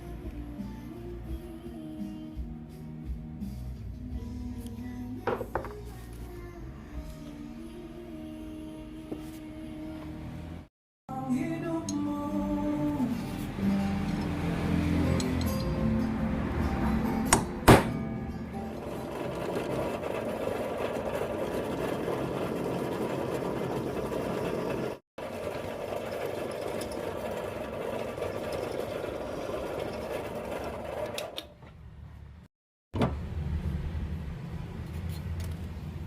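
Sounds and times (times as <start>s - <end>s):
background music: 0.0s - 20.8s.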